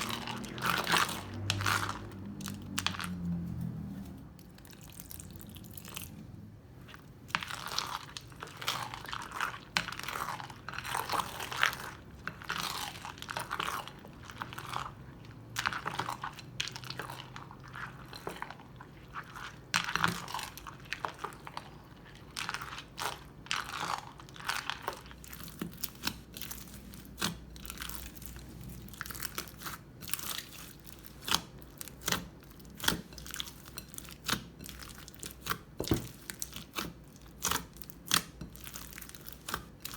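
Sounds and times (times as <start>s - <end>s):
crunchy slime crackling and popping: 0.0s - 3.6s, 19.4s - 39.9s.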